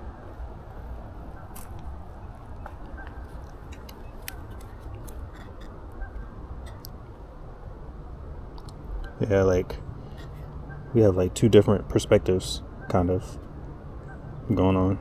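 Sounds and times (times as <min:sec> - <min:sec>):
steady low rumble: 0:00.0 - 0:15.0
small sharp clicks and crunches: 0:01.5 - 0:05.8.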